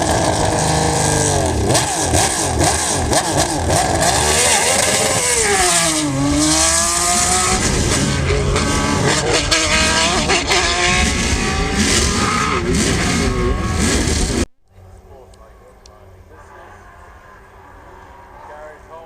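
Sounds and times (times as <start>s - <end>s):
racing car engine revving: 0.0s - 14.5s.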